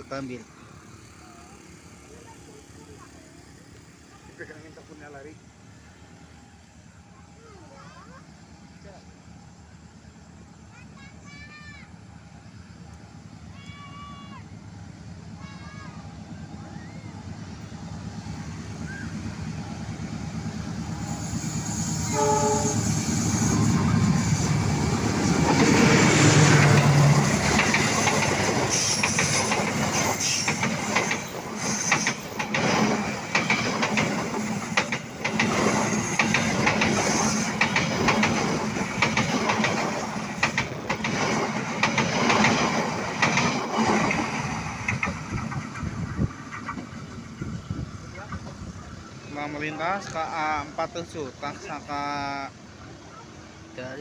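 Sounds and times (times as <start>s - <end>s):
diesel locomotive passing: 0.0s - 54.0s
train horn: 15.4s - 16.1s, 22.0s - 23.1s
rhythmic wheel clacks on rails: 23.4s - 47.2s.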